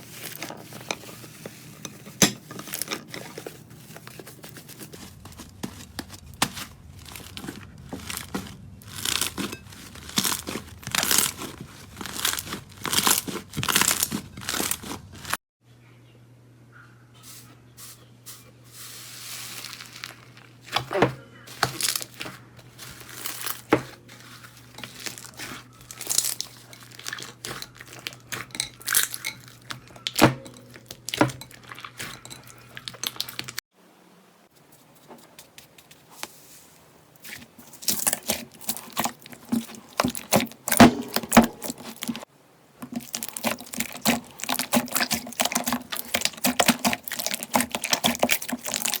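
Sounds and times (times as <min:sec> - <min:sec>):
slime squished by hand: 0:42.9 - 0:49.0.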